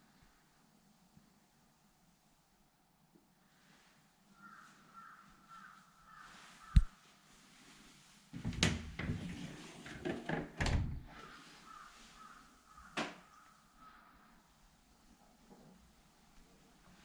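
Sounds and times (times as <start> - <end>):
sharp click: 6.7 - 6.9
door opened and shut: 8.4 - 11.3.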